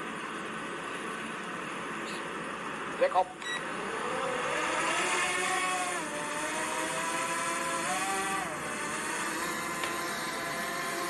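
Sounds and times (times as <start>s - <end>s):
drone propellers whining: 3.5s - 11.0s.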